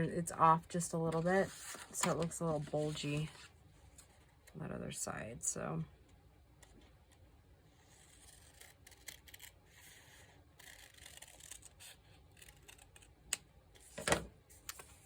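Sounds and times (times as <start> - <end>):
paper rustling: 1.1 - 4.2.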